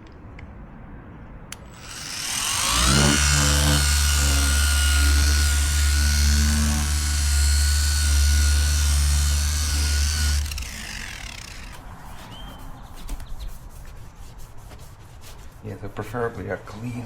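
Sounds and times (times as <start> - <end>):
rotary polisher whining: 1.6 - 12.3
soft rubbing: 11.7 - 16.2.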